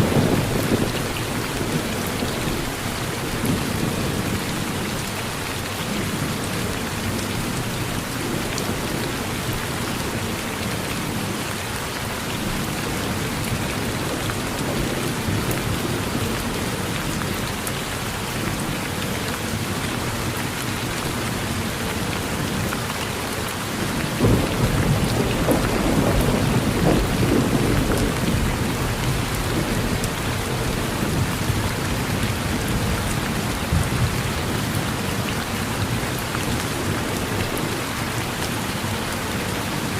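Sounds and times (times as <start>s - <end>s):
thunder rumbling: 0.0s - 5.0s, 23.9s - 37.8s
rain falling on a porch: 0.0s - 39.9s.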